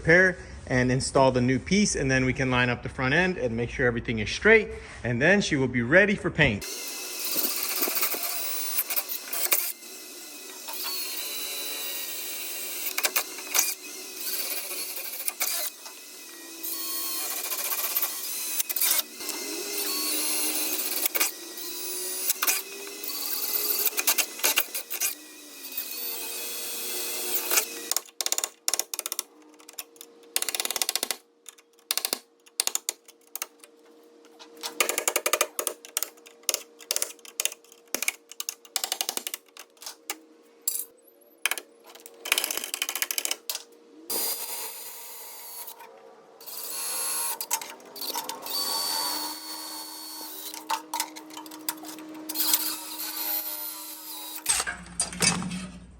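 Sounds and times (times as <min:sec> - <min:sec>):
power tool whining: 0:06.6 - 0:28.1, 0:42.4 - 0:54.9.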